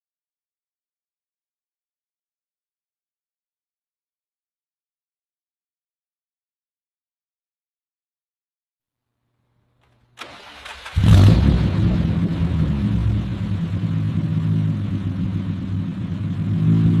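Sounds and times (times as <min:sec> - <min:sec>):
car engine starting and idling: 0:10.2 - 0:17.0.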